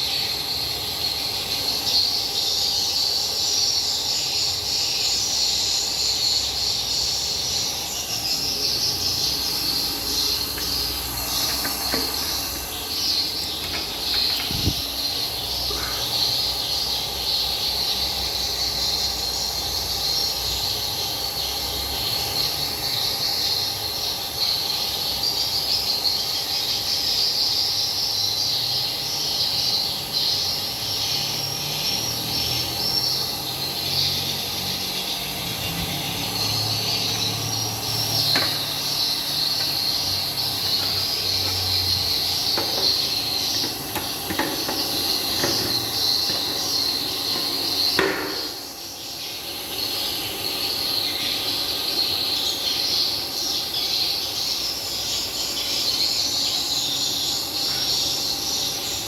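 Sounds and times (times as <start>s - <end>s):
humidifier humming: 0.0s - 26.3s, 29.8s - 54.5s
high-pitched chirring: 5.2s - 17.9s, 34.1s - 49.1s.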